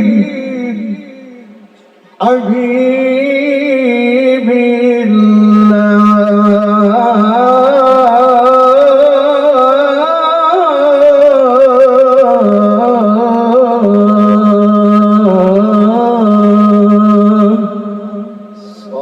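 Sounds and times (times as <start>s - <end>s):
man singing melismatic line: 0.0s - 12.4s.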